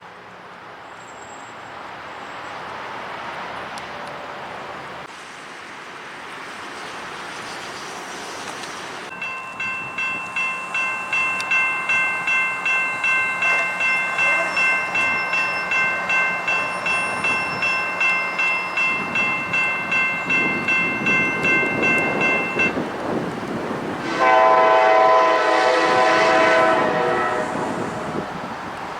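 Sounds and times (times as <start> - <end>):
freight train rumble: 1.5 - 28.9
railroad crossing bell ringing: 9.1 - 23.0.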